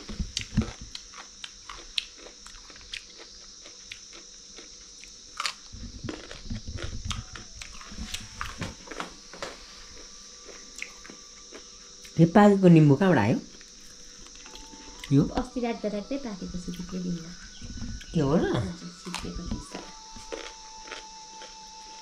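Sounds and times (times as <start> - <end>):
man crunching cucumber: 0.1 - 12.2, 19.1 - 22.0.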